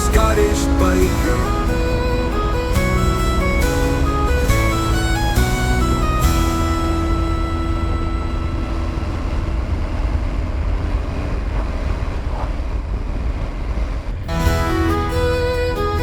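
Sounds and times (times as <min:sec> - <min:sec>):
music: 0:00.0 - 0:09.4, 0:14.3 - 0:16.0.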